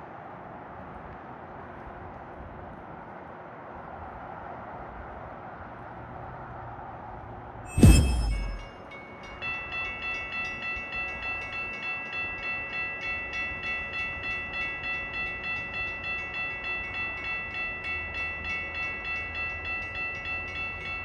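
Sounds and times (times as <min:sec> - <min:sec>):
railroad crossing bell ringing: 0:07.7 - 0:21.0.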